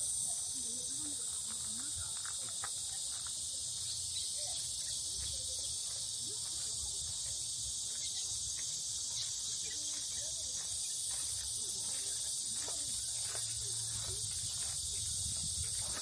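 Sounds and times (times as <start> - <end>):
faint distant voices: 0.0 - 16.0
insects trilling: 0.0 - 16.0.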